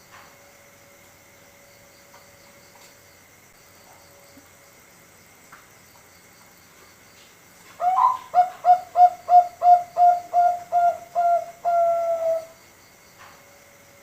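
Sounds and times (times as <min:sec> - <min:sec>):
dove cooing: 0:07.8 - 0:12.6.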